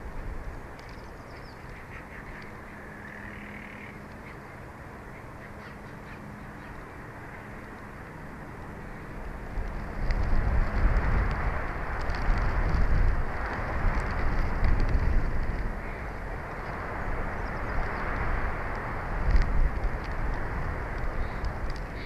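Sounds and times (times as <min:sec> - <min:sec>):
wind on microphone: 0:00.0 - 0:04.5, 0:05.3 - 0:22.0
faint caw-like bird calls: 0:00.9 - 0:07.6.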